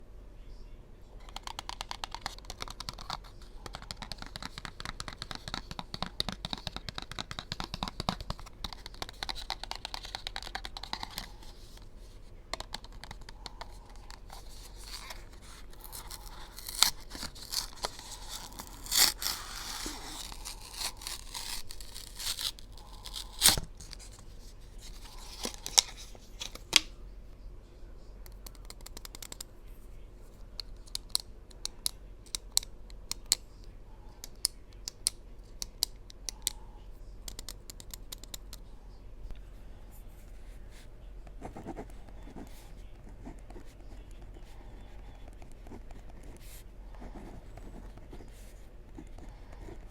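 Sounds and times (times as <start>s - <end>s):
packaging scratching and tapping: 1.2s - 11.9s, 12.5s - 24.2s
packaging rustling: 13.8s - 26.8s.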